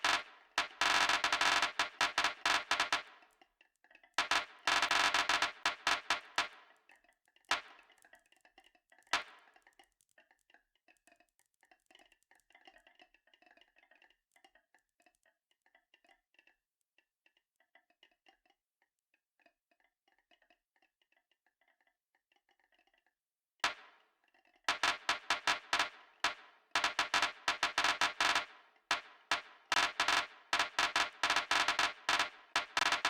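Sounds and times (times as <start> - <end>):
marbles rolling on a track: 0.0 - 3.1, 4.2 - 6.5, 24.7 - 33.0.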